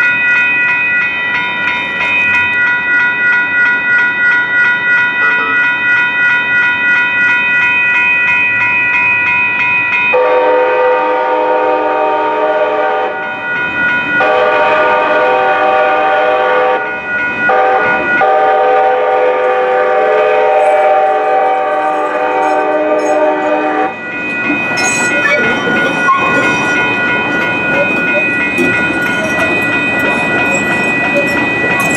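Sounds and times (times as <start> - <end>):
crossing signal bell ringing: 0.0 - 31.9
train horn blasts: 10.2 - 13.3, 14.2 - 16.9, 17.5 - 24.0.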